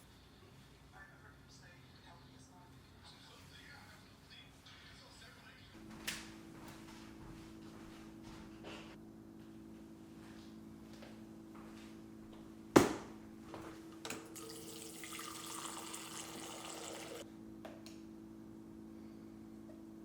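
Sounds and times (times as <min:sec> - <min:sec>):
steady low hum: 0:05.6 - 0:14.1, 0:14.8 - 0:20.0
water running from a tap: 0:14.3 - 0:17.2.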